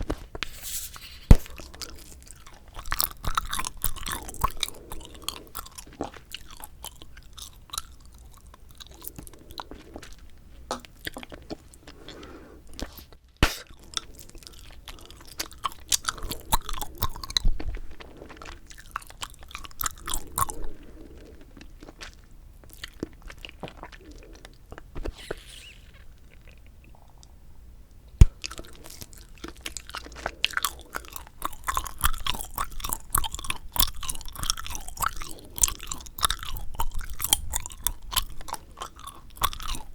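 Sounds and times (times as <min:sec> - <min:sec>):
bubble gum chewing: 0:01.2 - 0:12.2, 0:12.8 - 0:27.0, 0:28.2 - 0:39.9
sharp gum snap: 0:13.4 - 0:13.7.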